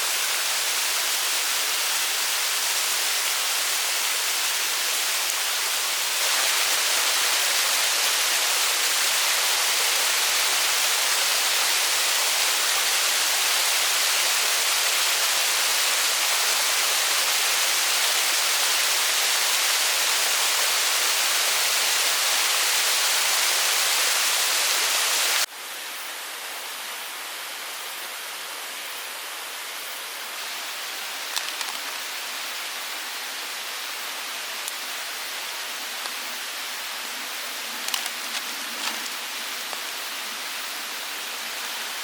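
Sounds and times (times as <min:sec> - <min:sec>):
stream rushing: 0:00.0 - 0:25.5, 0:28.6 - 0:42.0
faint clicks: 0:31.3 - 0:32.0.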